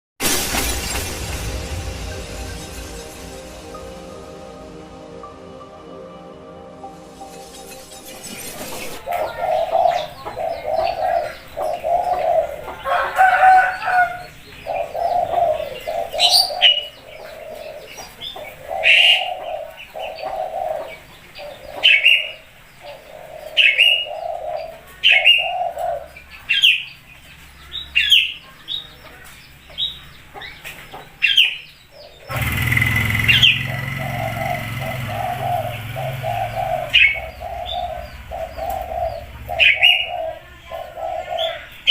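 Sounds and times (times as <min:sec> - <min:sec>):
starling calling sharp falling notes: 0:00.2 - 0:11.3, 0:32.3 - 0:41.9
steady rumbling noise: 0:00.8 - 0:10.2
dove cooing: 0:08.2 - 0:26.2, 0:32.0 - 0:41.9.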